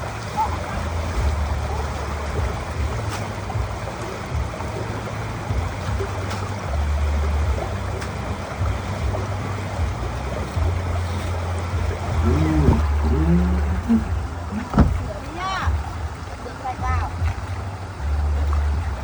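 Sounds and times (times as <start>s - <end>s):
flowing water rushing: 0.0s - 19.0s
low rumble: 5.5s - 16.4s.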